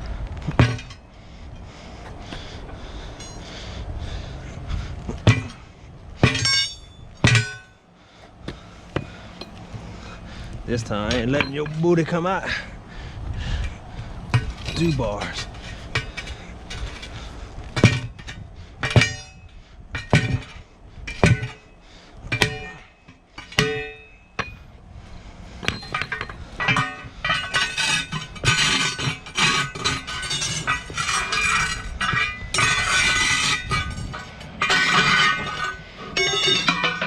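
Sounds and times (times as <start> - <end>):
metallic clatter and scraping: 0.4 - 3.6, 5.1 - 7.8, 8.5 - 12.7, 13.5 - 37.0
hammer on steel clanking: 6.2 - 7.7, 22.3 - 24.6.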